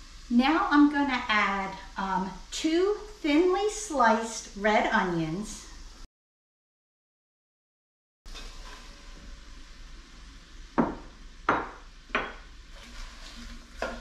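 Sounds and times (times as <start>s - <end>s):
faint sizzle: 0.0s - 6.1s, 8.3s - 14.0s
utensil knocking on pot: 10.8s - 12.5s.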